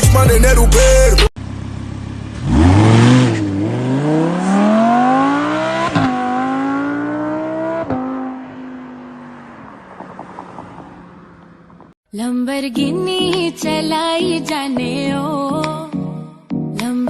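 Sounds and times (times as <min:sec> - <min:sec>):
sports car engine accelerating: 0:01.4 - 0:12.0.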